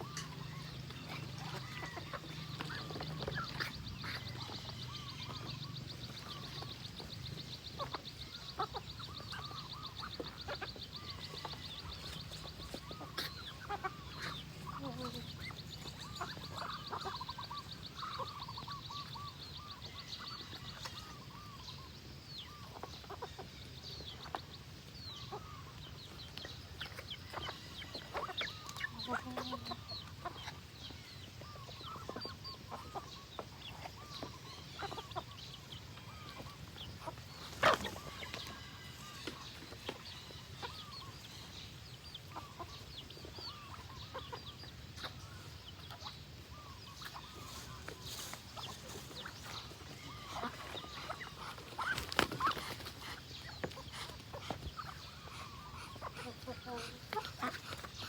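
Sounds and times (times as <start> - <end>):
poultry clucking: 0.0 - 58.0.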